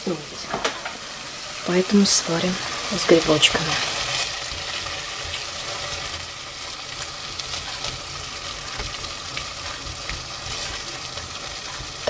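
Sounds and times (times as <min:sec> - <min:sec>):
food sizzling in a pot: 0:00.0 - 0:12.0
spatula scraping and tapping pot: 0:04.1 - 0:12.0.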